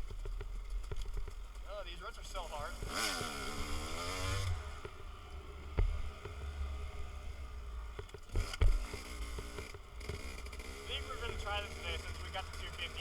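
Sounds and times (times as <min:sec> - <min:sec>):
dirt bike engine: 0:00.0 - 0:13.0
bike thumping over ruts: 0:07.9 - 0:12.1.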